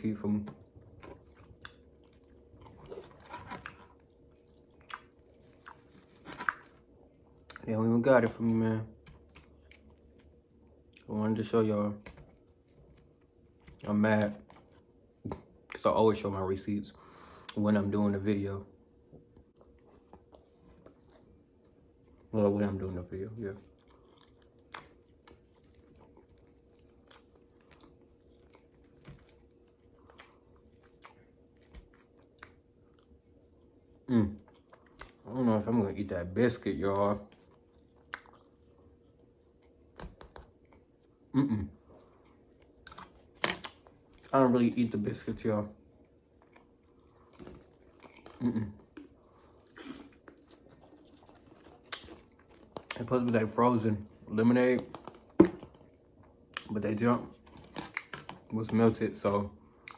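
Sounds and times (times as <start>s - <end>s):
faint steady hum: 0.0s - 59.9s
chewing and mouth smacking: 0.5s - 7.7s, 9.0s - 11.1s, 23.6s - 35.3s, 37.3s - 41.2s, 41.9s - 44.3s, 45.9s - 53.5s, 54.8s - 59.9s
chewing mouth sounds: 37.4s - 38.8s.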